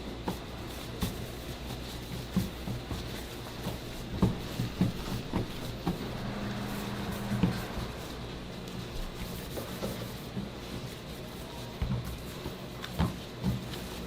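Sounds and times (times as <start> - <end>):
soft handling knocks and thumps: 0.2 - 6.1, 11.8 - 14.0
brief steady hum: 6.0 - 8.7.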